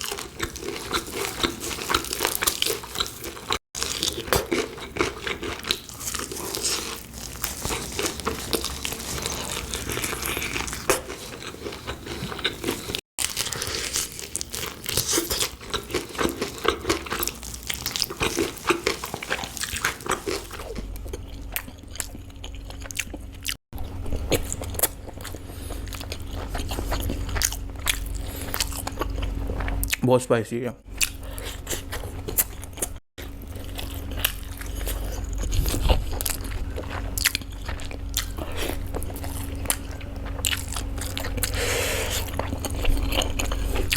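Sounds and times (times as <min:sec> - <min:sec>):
person crunching and chewing food: 0:00.0 - 0:30.0, 0:30.8 - 0:43.9
steady low hum: 0:15.6 - 0:43.9.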